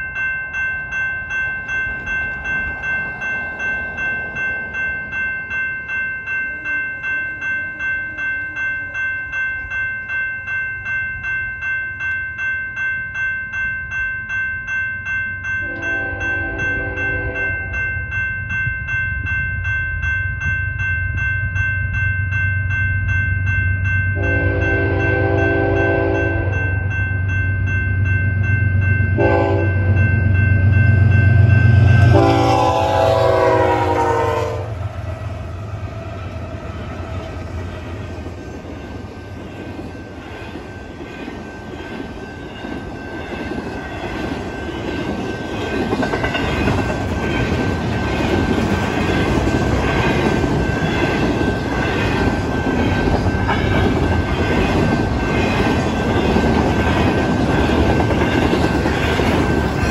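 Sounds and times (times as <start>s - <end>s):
crossing bell ringing: 0.0s - 59.9s
diesel locomotive horn: 15.6s - 17.6s, 24.2s - 26.7s, 29.2s - 30.0s, 32.0s - 37.1s.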